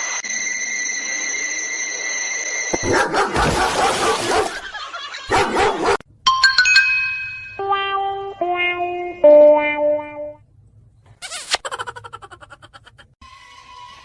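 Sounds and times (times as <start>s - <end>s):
dog barking: 2.8s - 4.6s, 5.3s - 6.0s
ringing chime notes: 6.3s - 8.4s
sad trombone sound effect: 7.6s - 10.4s.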